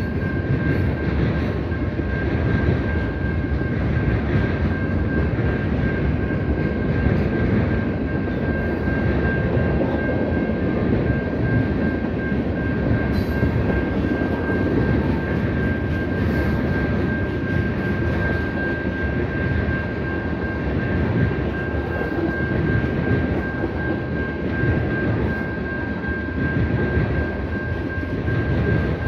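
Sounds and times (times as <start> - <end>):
crossing signal bell ringing: 0.0 - 29.0
freight train wheels on rail: 0.0 - 29.0.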